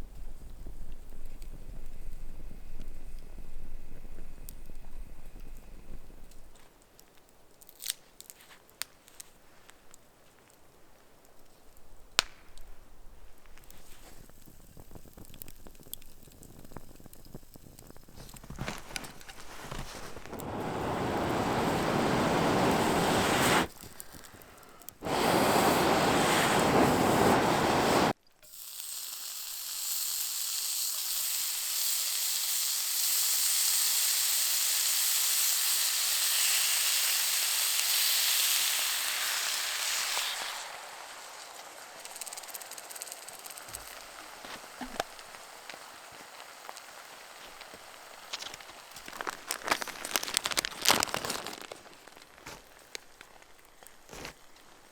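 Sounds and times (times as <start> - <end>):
fire crackling softly: 0.0 - 54.9
fire rushing in stove: 13.8 - 28.2, 37.2 - 52.4
high hiss: 18.9 - 50.8.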